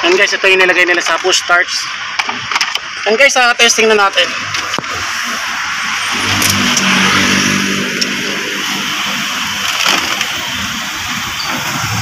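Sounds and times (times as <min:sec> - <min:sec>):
car engine running: 0:04.2 - 0:12.0.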